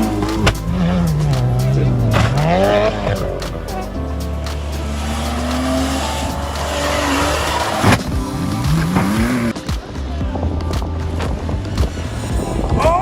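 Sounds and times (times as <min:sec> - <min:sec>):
racing car engine revving: 0:00.0 - 0:09.6
background music: 0:00.0 - 0:13.0.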